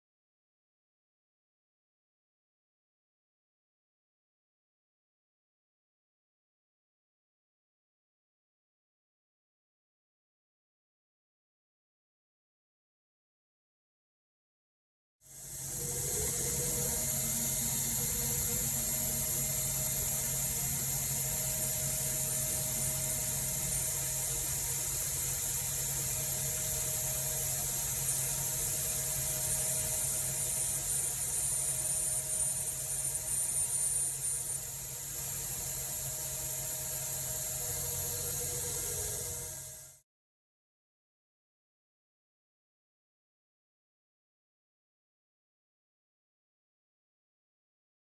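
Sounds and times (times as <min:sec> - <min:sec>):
thin high whine: 0:15.3 - 0:40.0.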